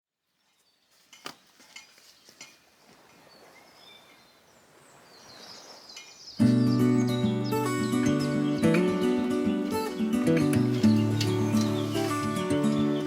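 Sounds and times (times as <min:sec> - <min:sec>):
high bird chirps: 0:03.2 - 0:13.0.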